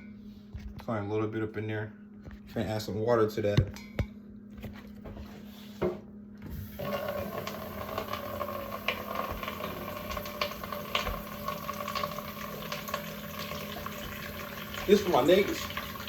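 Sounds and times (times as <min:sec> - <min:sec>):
tap water running: 0:06.5 - 0:16.0.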